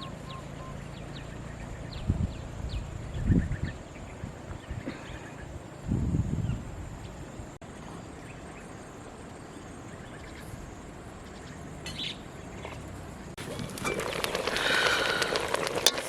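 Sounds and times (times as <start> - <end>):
low background ambience: 6.6 - 16.0.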